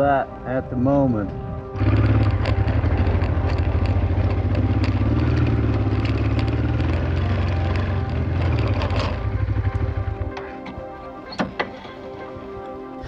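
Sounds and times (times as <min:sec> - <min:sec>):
motorcycle engine running: 0:01.8 - 0:10.4.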